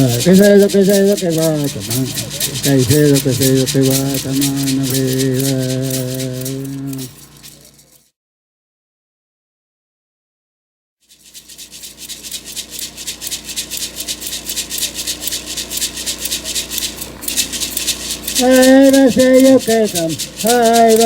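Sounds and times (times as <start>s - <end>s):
man chanting: 0.0s - 7.8s, 18.4s - 21.0s
hand rattle shaken: 0.0s - 8.1s, 11.1s - 21.0s.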